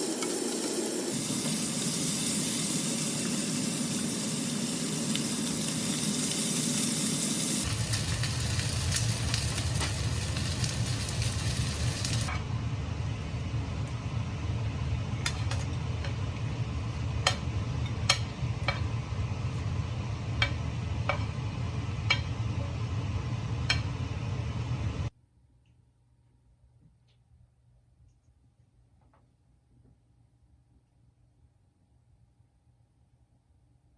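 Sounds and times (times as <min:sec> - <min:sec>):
food sizzling in a frying pan: 0:00.0 - 0:12.3.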